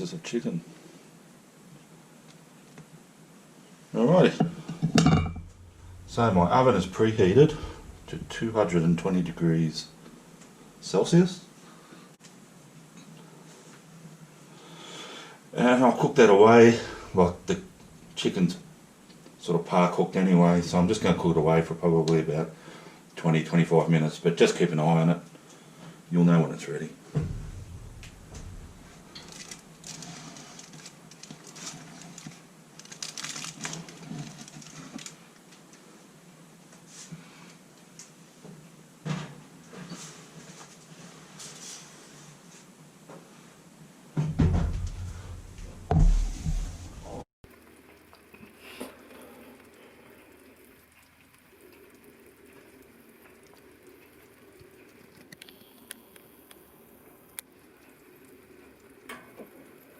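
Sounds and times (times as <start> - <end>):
liquid simmering and bubbling: 4.4 - 10.8, 16.3 - 21.2, 27.0 - 38.8, 44.4 - 59.9
soft knock: 27.2 - 29.2.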